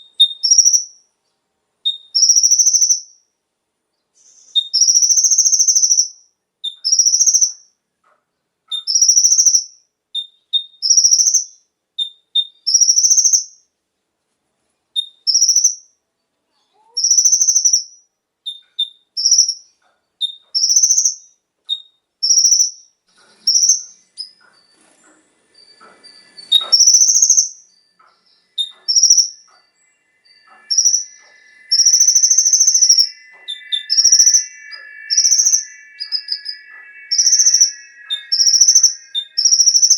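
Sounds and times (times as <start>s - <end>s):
sunbird singing high calls: 1.9s - 3.2s, 4.1s - 7.8s, 8.7s - 13.6s, 14.9s - 39.9s
faint steady tones: 22.8s - 39.9s.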